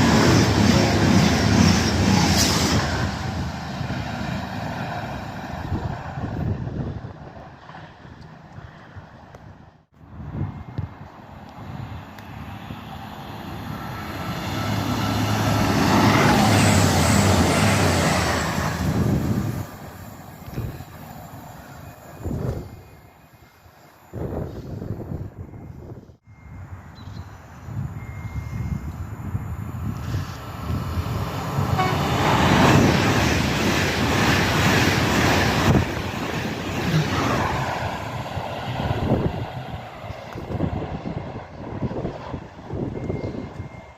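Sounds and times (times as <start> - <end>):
train rumbling through station: 0.0 - 43.9
train horn note: 31.7 - 32.4.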